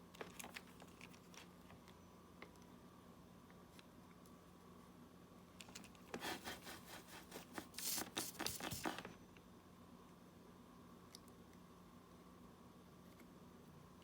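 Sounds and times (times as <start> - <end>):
scratchy rubbing and scraping: 6.2 - 9.0.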